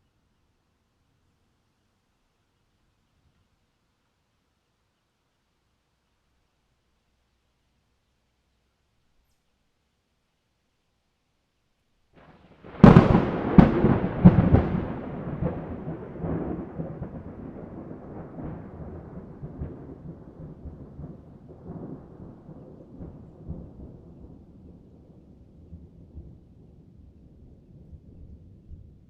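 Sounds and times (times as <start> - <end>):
thunder cracks: 12.2 - 24.8
thunder rumble: 12.2 - 29.0.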